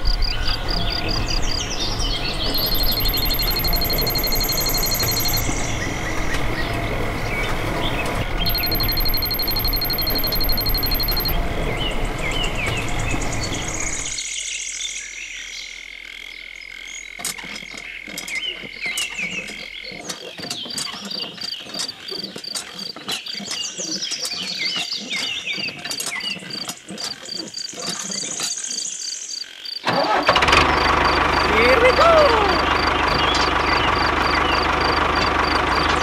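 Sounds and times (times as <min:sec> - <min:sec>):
frogs croaking: 0:00.0 - 0:07.4, 0:08.4 - 0:11.4, 0:15.0 - 0:23.6, 0:25.8 - 0:36.0
insects chirping: 0:00.0 - 0:11.4, 0:19.2 - 0:35.9
small engine humming: 0:00.1 - 0:14.2, 0:29.9 - 0:36.0
high pulsing trill: 0:02.2 - 0:06.0, 0:08.3 - 0:14.2.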